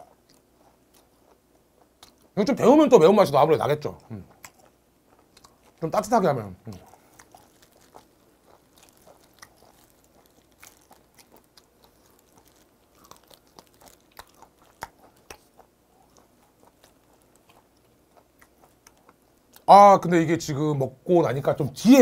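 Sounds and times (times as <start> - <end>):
person chewing with wet smacks: 0.0 - 2.4, 3.9 - 6.0, 6.6 - 19.7.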